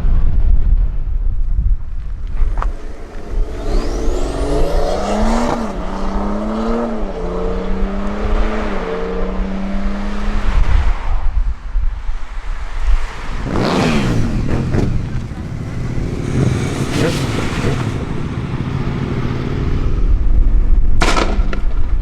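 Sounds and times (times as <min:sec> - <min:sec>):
wind buffeting microphone: 0:00.0 - 0:22.0
vehicle passing close: 0:02.0 - 0:11.4, 0:12.4 - 0:21.2
car accelerating through gears: 0:02.4 - 0:10.8, 0:13.0 - 0:20.4.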